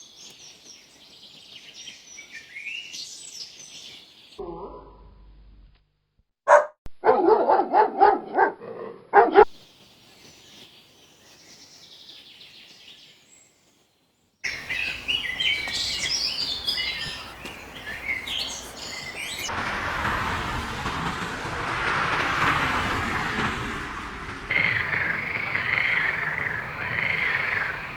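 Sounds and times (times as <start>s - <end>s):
dog barking: 6.5s - 9.6s
birds chirping: 14.4s - 21.4s, 24.4s - 27.9s
high twittering: 14.5s - 19.5s, 24.5s - 27.9s
broad rushing noise: 14.5s - 27.9s.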